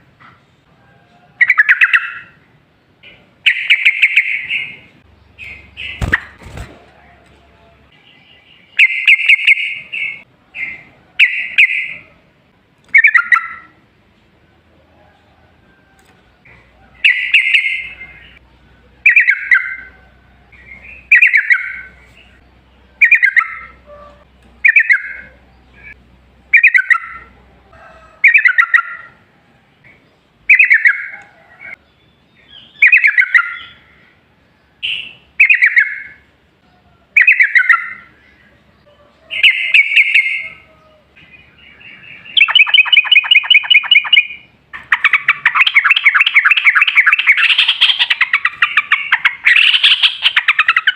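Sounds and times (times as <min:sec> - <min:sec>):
rapid rolling bird trill: 0:03.4 - 0:07.2, 0:19.0 - 0:29.2, 0:41.3 - 0:50.9
bird singing bubbly phrases: 0:12.9 - 0:13.7, 0:23.0 - 0:23.8, 0:24.6 - 0:27.4, 0:30.5 - 0:31.1, 0:32.5 - 0:33.8, 0:37.2 - 0:38.2, 0:41.5 - 0:50.9.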